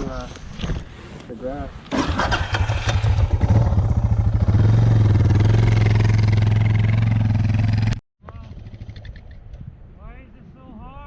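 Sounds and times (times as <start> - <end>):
motorcycle engine revving: 1.9 - 9.2.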